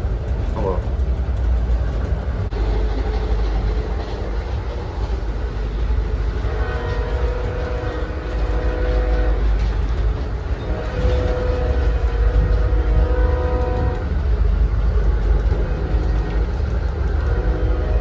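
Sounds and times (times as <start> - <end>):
train rumbling: 0.0 - 18.0
train horn chord: 6.4 - 9.8, 10.6 - 14.2, 15.8 - 18.0.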